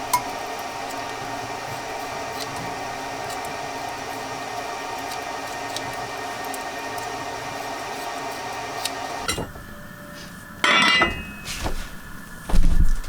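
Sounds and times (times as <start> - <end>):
loud ringing clink: 10.6 - 11.6
heavy thump: 12.5 - 13.0.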